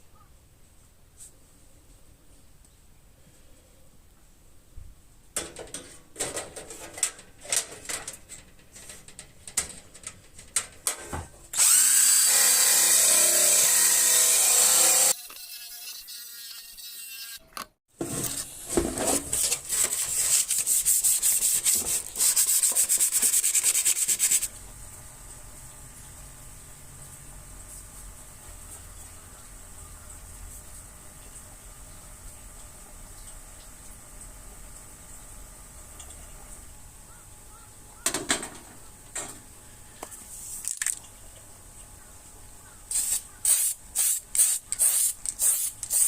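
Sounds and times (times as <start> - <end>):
power tool running on sheet metal: 11.6 - 15.3.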